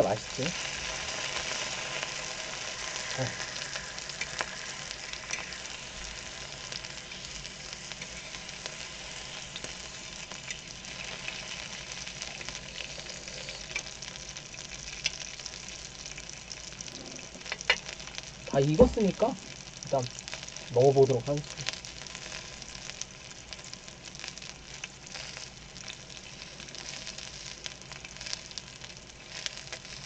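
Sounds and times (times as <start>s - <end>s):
meat sizzling in a pan: 0.0s - 30.0s
crackling pops: 13.6s - 23.1s.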